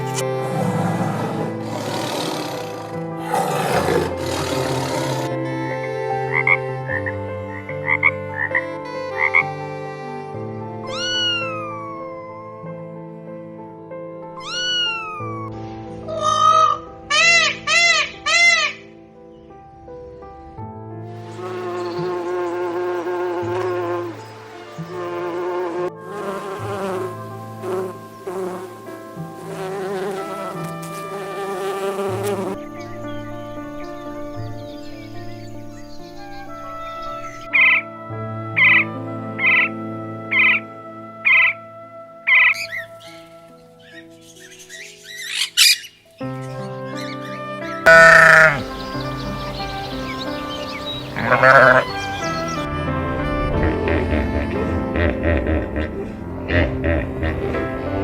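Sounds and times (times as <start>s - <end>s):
buzzing insect wings: 0.0s - 5.5s, 21.2s - 32.6s, 47.9s - 52.6s
background music chords: 0.0s - 58.0s
frog croaking: 0.1s - 5.4s, 6.3s - 8.5s, 47.9s - 48.8s, 51.0s - 52.2s
cat meowing: 47.9s - 48.7s, 51.2s - 52.0s.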